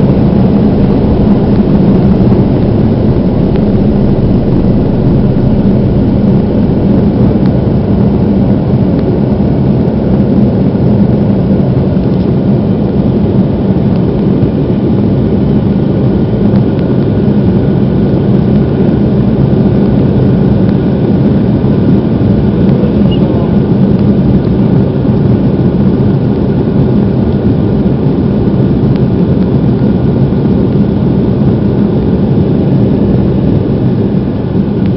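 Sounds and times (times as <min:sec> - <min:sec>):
faint steady tones: 0:00.0 - 0:08.4
aircraft engines and rushing air: 0:00.0 - 0:34.9.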